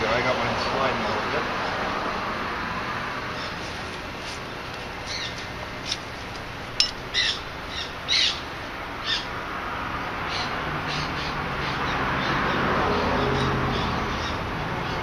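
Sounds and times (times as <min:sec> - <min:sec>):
steady background noise: 0:00.0 - 0:15.0
bird chirping: 0:06.8 - 0:09.3.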